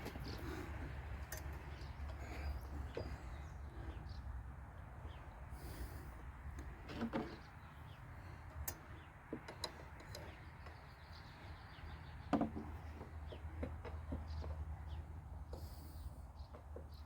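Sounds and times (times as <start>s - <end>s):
tools and metal parts clicking: 1.2s - 1.7s.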